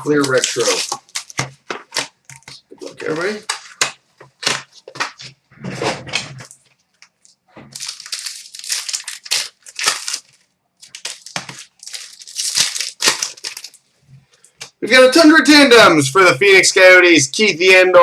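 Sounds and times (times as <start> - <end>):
card wrappers tearing and crinkling: 0.0 - 5.4, 6.0 - 14.8.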